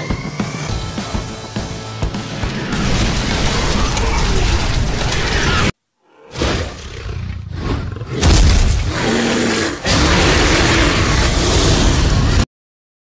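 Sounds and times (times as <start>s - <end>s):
animal roaring: 3.5s - 12.4s.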